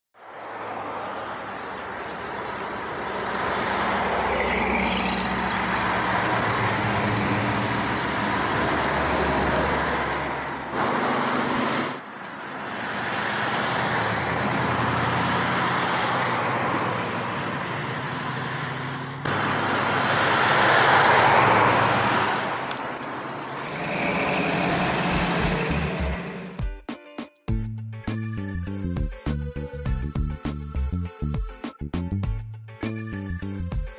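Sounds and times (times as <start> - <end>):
cars driving past: 0.2 - 26.6.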